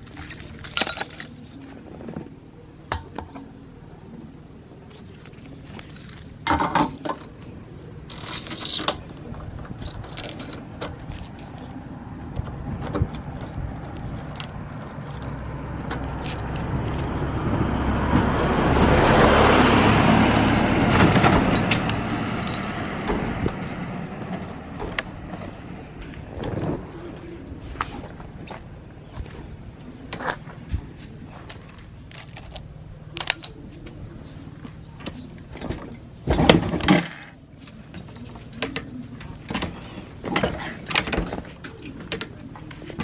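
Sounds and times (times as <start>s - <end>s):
motor vehicle passing: 9.3s - 33.7s.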